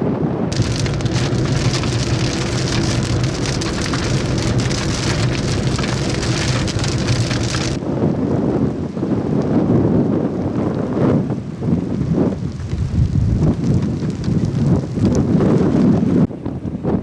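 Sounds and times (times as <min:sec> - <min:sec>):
low steady hum: 0:00.5 - 0:07.8
heavy rain on hard surface: 0:00.5 - 0:16.3.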